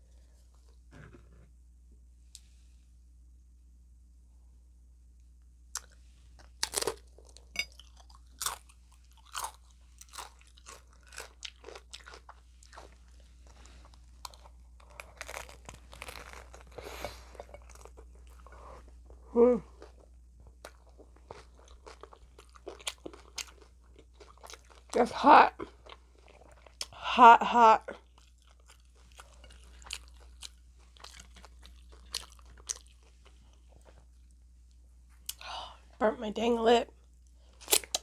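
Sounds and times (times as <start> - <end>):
crunching taco shells: 5.8 - 25.0, 28.0 - 34.0
person humming: 19.3 - 19.7.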